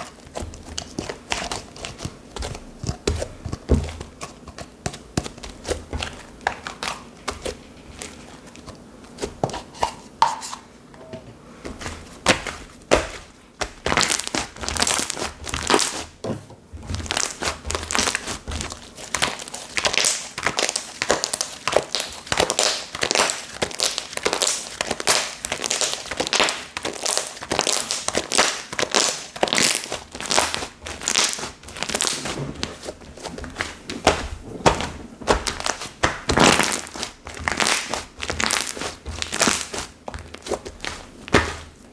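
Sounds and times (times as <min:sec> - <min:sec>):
slime crackling and popping: 0:12.9 - 0:16.1, 0:16.8 - 0:41.8.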